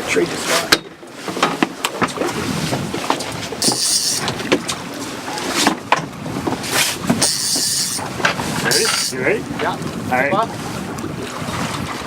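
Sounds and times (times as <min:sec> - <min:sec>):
burst of hissing noise: 0:03.6 - 0:04.3, 0:08.7 - 0:09.2.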